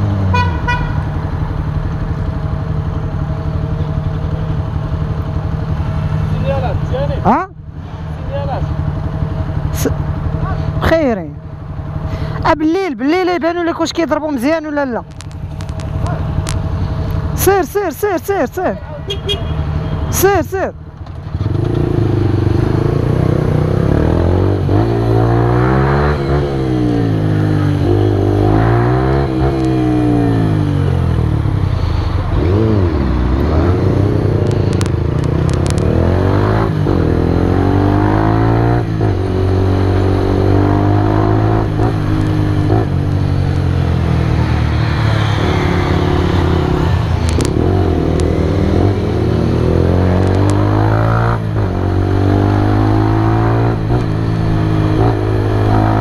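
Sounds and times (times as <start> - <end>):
motorcycle engine revving: 20.9 - 56.0.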